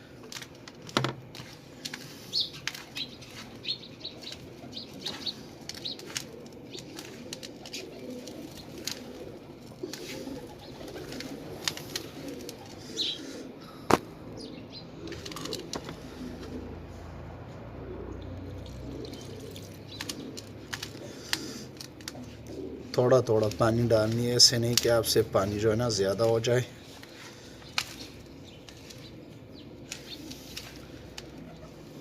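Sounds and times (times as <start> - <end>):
hands kneading wet dough: 0.3 - 12.9
faint birds chirping: 1.4 - 32.0.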